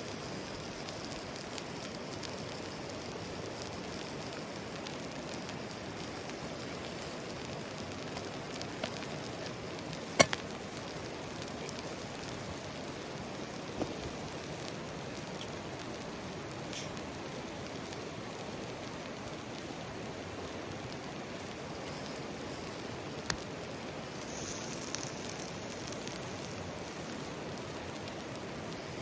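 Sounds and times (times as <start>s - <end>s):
sharp cracks: 10.0s - 10.7s.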